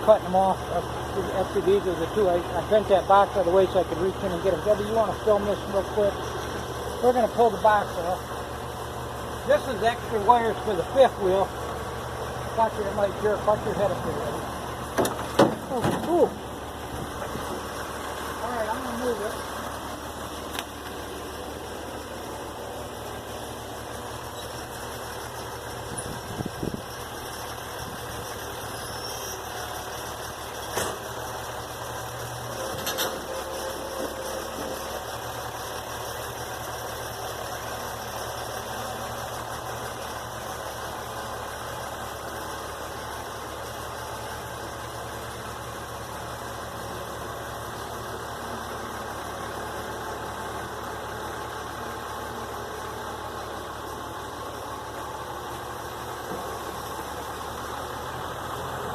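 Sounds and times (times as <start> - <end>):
vehicle engine idling: 0.0 - 58.9
sharp knocks: 15.0 - 16.2.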